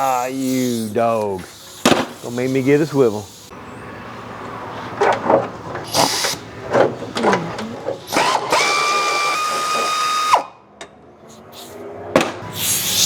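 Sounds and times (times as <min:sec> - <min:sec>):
power tool whining: 0:05.8 - 0:10.5.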